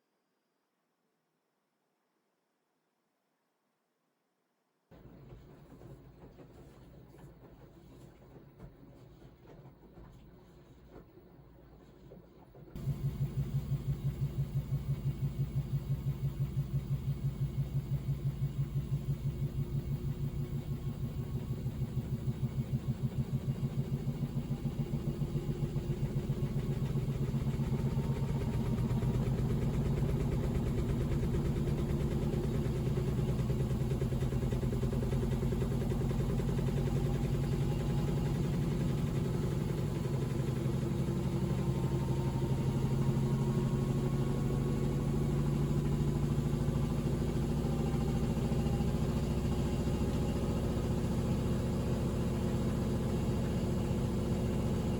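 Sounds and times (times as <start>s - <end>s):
faint motor whine: 5.0s - 54.9s
washing machine drum knocking: 12.8s - 24.0s.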